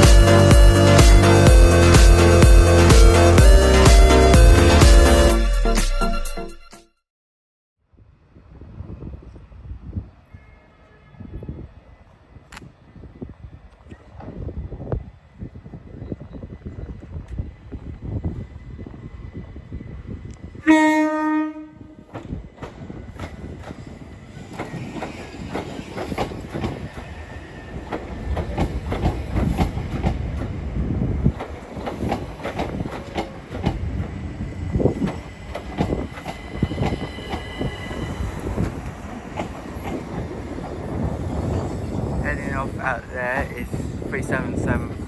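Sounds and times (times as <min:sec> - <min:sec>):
train rumbling: 0:00.0 - 0:05.4, 0:08.0 - 0:45.0
train horn blast: 0:10.2 - 0:11.6, 0:20.6 - 0:22.1
wheels clattering over rail joints: 0:22.0 - 0:42.2.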